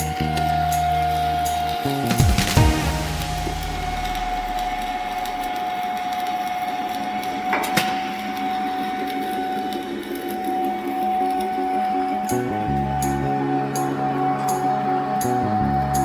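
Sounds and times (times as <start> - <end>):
thin steady whine: 0.0 - 16.0.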